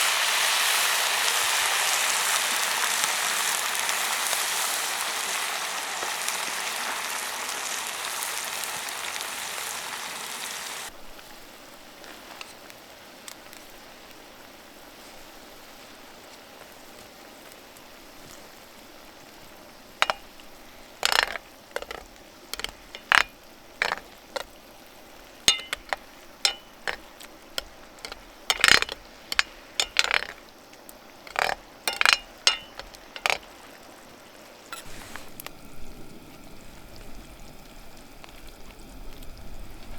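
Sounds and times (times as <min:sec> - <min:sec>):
utensils clinking and knocking: 0:20.0 - 0:20.4, 0:21.0 - 0:24.5, 0:25.4 - 0:30.4, 0:31.2 - 0:33.4.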